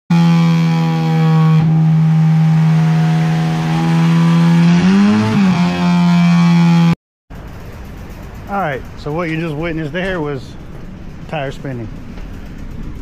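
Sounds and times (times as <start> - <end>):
car engine at high revs: 0.1 - 7.0
tire spinning on roller: 0.1 - 13.0.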